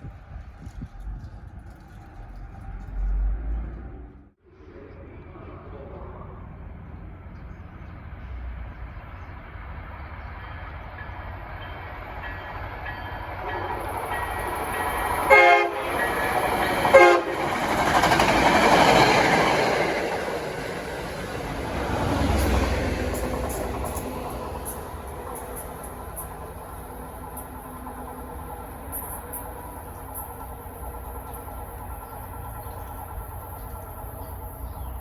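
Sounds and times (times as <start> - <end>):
train rumbling past: 0.0 - 35.0
train horn blasts: 15.0 - 17.6.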